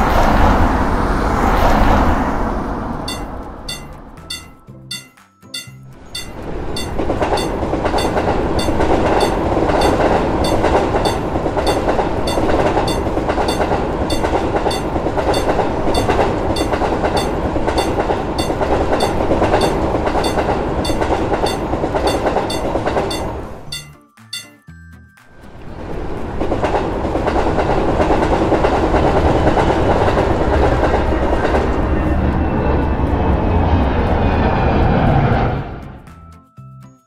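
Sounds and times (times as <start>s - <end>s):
train wheels rumbling on rails: 0.0s - 24.5s, 25.6s - 35.9s
crossing bell ringing: 3.0s - 25.1s.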